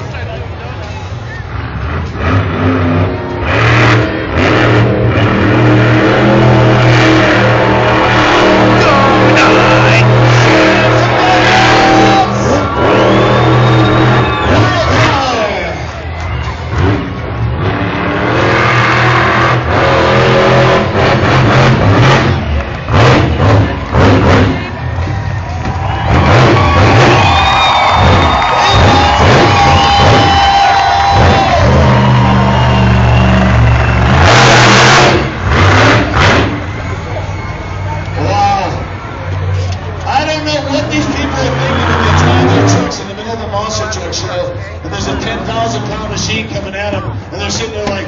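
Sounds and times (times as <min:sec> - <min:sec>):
truck engine revving: 0:00.9 - 0:48.0.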